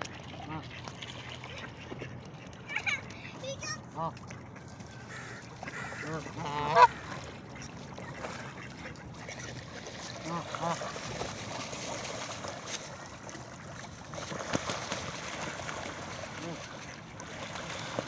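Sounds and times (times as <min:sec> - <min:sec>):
geese honking: 0:05.0 - 0:07.2.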